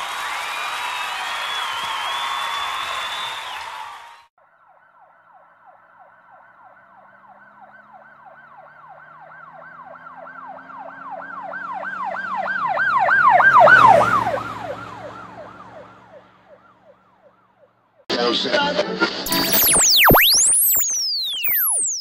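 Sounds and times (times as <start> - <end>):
emergency vehicle siren wailing: 4.6 - 17.8, 19.3 - 22.0.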